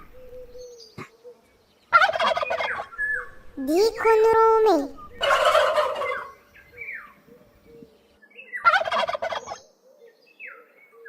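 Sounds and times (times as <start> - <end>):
turkey gobbling: 1.9 - 3.4, 5.0 - 7.0, 8.6 - 9.6.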